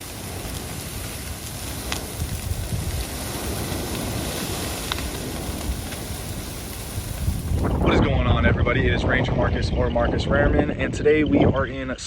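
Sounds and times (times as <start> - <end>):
steady rain: 0.0 - 8.1
wind buffeting microphone: 0.0 - 12.0.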